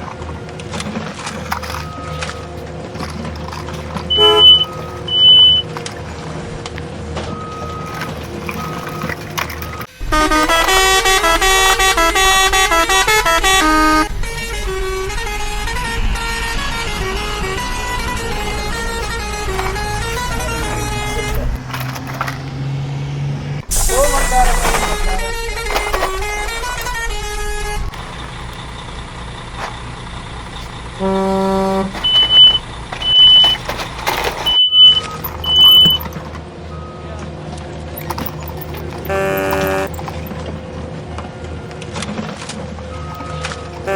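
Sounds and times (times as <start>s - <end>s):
reversing alarm beeping: 4.1s - 5.7s, 7.3s - 14.0s, 31.0s - 37.2s
stepped electronic tones: 4.1s - 5.7s, 31.0s - 33.7s, 34.4s - 36.1s
vehicle horn honking: 4.1s - 5.7s, 8.6s - 22.3s, 23.7s - 28.9s, 30.5s - 36.4s, 38.0s - 40.4s, 43.0s - 43.9s.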